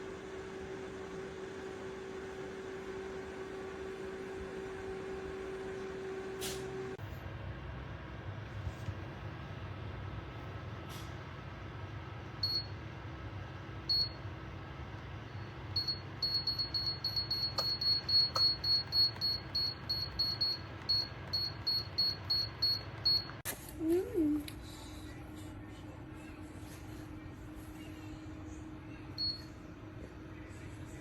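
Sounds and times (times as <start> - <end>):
steady low hum: 0.0 - 31.0
heater control beeps: 12.4 - 12.8, 13.9 - 14.3, 15.3 - 23.4, 29.1 - 29.6.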